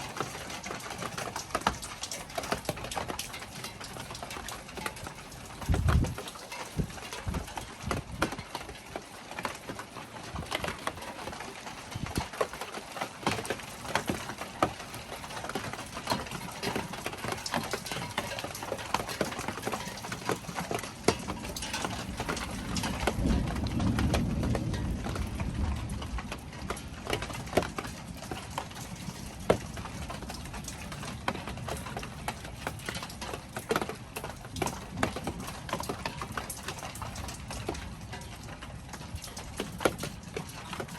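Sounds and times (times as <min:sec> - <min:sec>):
rain pattering: 0:00.0 - 0:40.9
thunder rumbling: 0:21.3 - 0:30.6.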